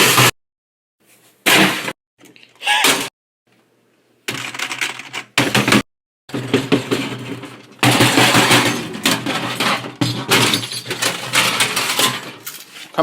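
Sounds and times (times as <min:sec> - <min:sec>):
hard objects banging and clattering: 0:01.4 - 0:02.0, 0:04.3 - 0:12.9.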